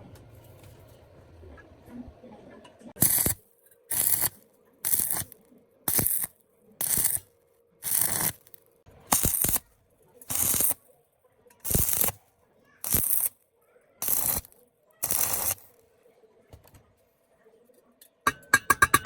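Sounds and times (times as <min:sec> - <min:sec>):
scraping strokes: 0:14.0 - 0:15.8.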